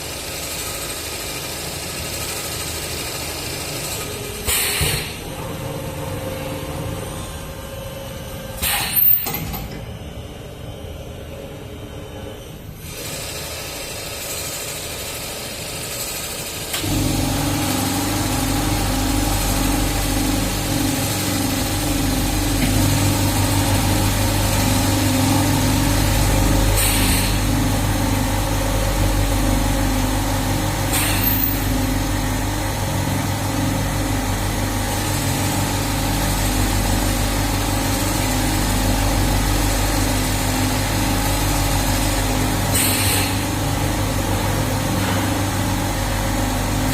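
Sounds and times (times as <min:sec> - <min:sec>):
sewing machine running: 0:12.8 - 0:44.4.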